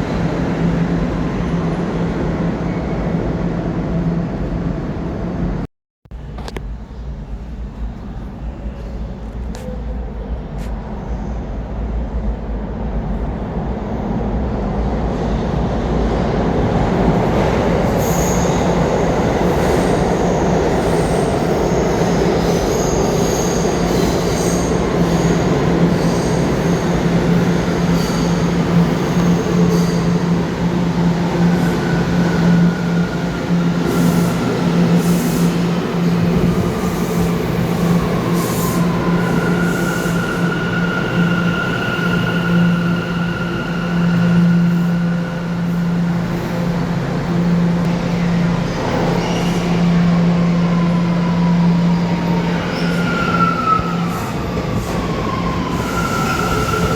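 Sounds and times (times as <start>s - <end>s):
subway train wheels on rails: 0.0s - 56.9s
high wheel squeals: 19.5s - 47.7s, 48.9s - 56.9s.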